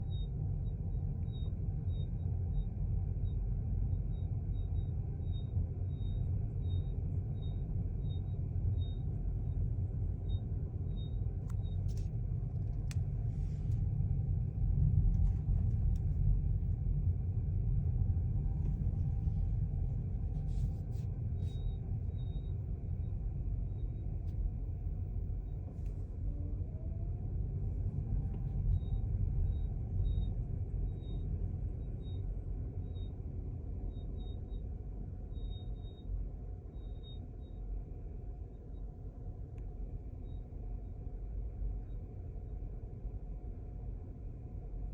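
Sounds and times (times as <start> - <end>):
car road and drive rumble: 0.4 - 44.9
faint high chirp: 33.8 - 37.6.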